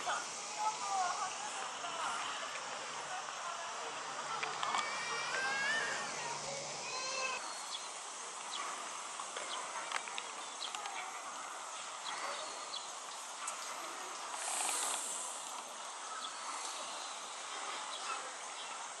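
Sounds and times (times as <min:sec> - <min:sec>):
steady hiss: 0:00.0 - 0:19.0
faint clicks: 0:04.3 - 0:04.9, 0:09.2 - 0:11.2, 0:13.1 - 0:15.7.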